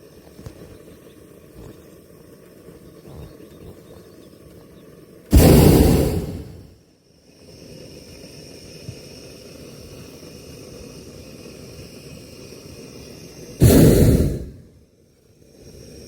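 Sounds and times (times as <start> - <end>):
propane burner roar: 3.9 - 6.7, 7.3 - 14.8
quiet hiss of air: 5.3 - 6.7, 13.6 - 14.7.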